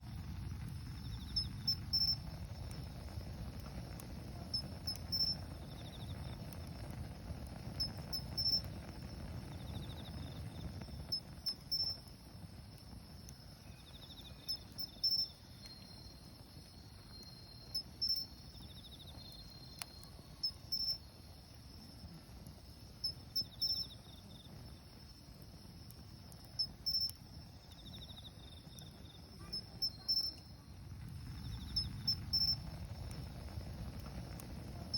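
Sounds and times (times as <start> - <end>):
wood fire crackling and popping: 0.0 - 34.9
crickets chirping: 0.1 - 34.9
insect pulsed trill: 0.4 - 4.0, 4.6 - 6.6, 7.7 - 22.2, 22.8 - 34.4.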